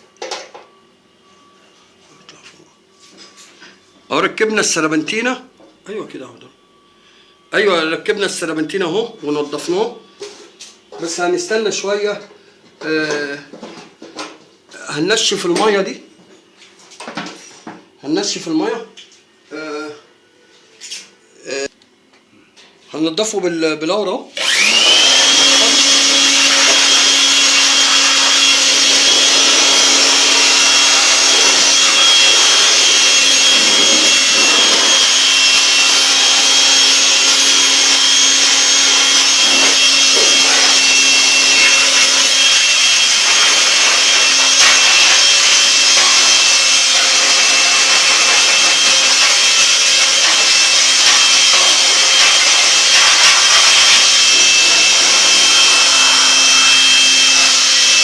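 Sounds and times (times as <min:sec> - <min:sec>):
electric blower whining: 0:24.4 - 0:58.0.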